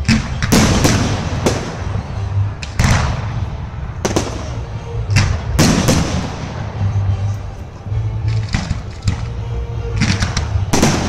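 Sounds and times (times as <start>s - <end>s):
fireworks bangs: 0.0s - 6.9s, 10.0s - 11.0s
fireworks crackling: 0.0s - 7.1s.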